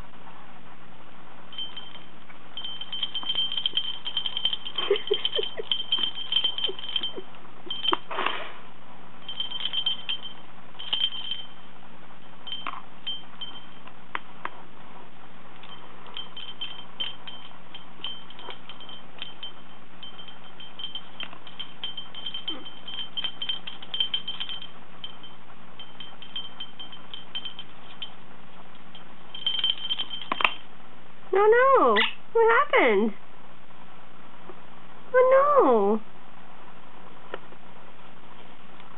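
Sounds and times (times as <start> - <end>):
small bell jingling: 1.5 - 8.1, 9.2 - 13.9, 15.6 - 30.8.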